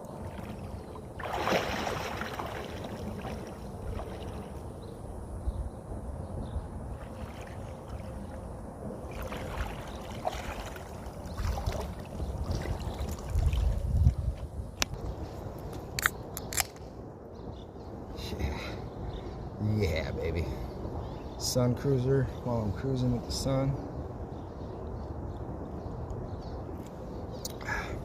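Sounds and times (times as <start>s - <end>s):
water splashing around kayak: 0.0s - 5.0s, 6.9s - 14.5s.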